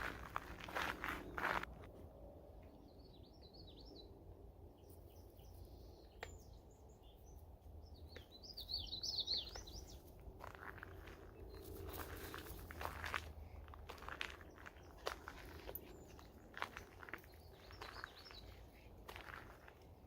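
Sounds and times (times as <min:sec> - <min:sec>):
faint low rumble of woods: 0:00.0 - 0:20.0
songbird twittering: 0:05.1 - 0:10.0.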